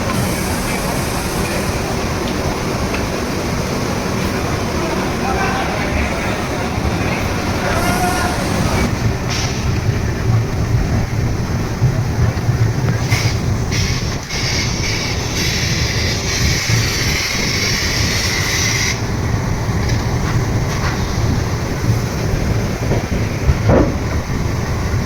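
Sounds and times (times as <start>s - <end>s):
bright hiss: 0.0s - 9.8s
train rumbling on rails: 0.0s - 25.0s.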